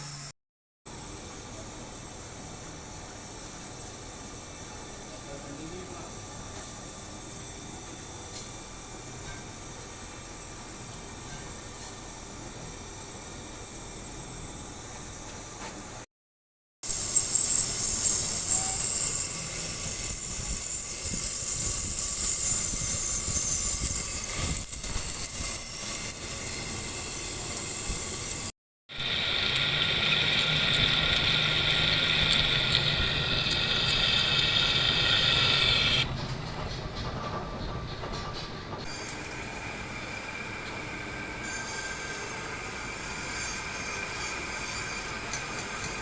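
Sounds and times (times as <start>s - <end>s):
metal lathe cutting hiss: 16.8s - 36.1s, 38.9s - 46.0s
cutting tool squealing: 16.9s - 28.5s, 32.3s - 36.1s, 40.6s - 46.0s.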